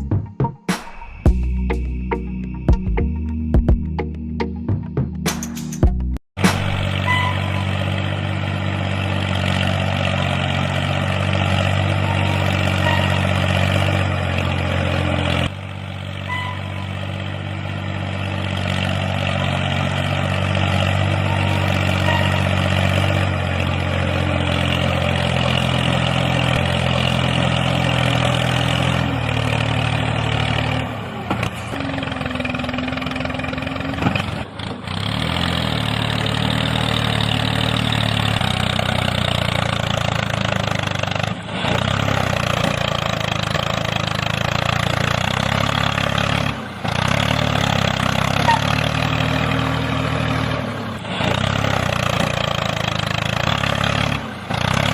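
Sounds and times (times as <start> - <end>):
tractor engine idling: 6.4 - 54.9.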